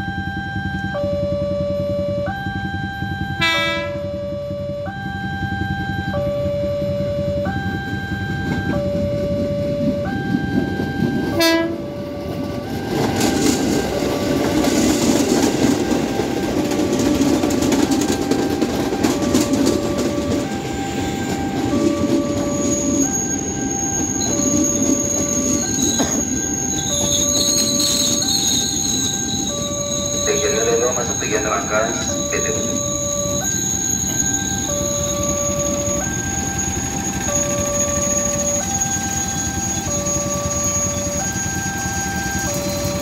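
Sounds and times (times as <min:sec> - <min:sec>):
high whine: 0:00.0 - 0:43.0
two-tone crossing alarm: 0:00.0 - 0:43.0
train horn blast: 0:03.3 - 0:04.2, 0:11.3 - 0:12.0
train rushing past: 0:05.5 - 0:43.0.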